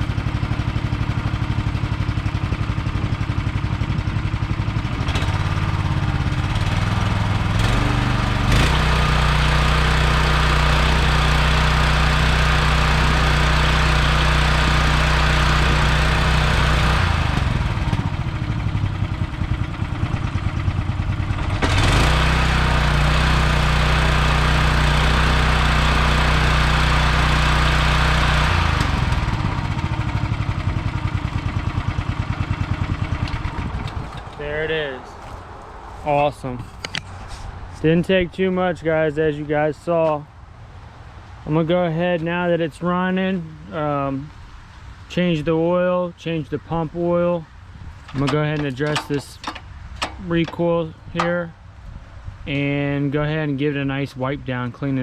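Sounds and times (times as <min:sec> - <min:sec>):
pressure washer engine running: 0:00.0 - 0:34.5, 0:48.0 - 0:51.5.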